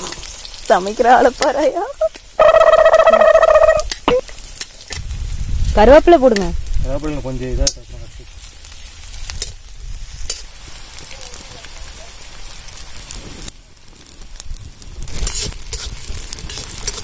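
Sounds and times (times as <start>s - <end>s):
vegetables sizzling in hot oil: 0.0s - 17.0s
steel spoon stirring and scraping: 15.1s - 17.0s.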